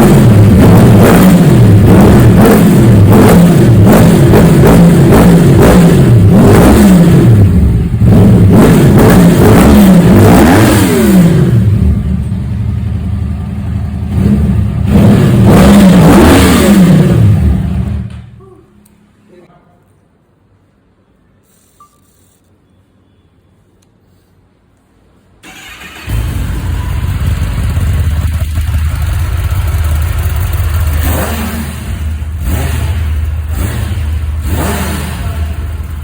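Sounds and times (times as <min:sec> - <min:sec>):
vehicle engine revving hard: 0:00.0 - 0:11.8, 0:14.1 - 0:18.0, 0:25.5 - 0:36.0.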